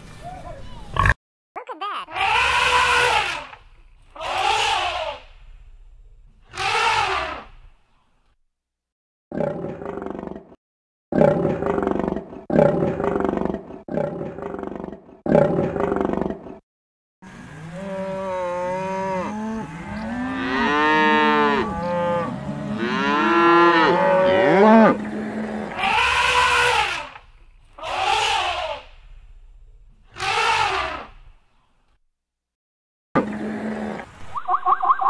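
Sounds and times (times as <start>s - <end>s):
harsh animal cries: 2.1s - 3.6s, 4.2s - 5.2s, 6.5s - 7.5s, 25.7s - 27.2s, 27.8s - 28.9s, 30.2s - 31.1s
animal cries sliding in pitch: 4.2s - 5.2s, 27.8s - 28.8s
animal roaring: 11.2s - 16.5s, 17.6s - 27.1s.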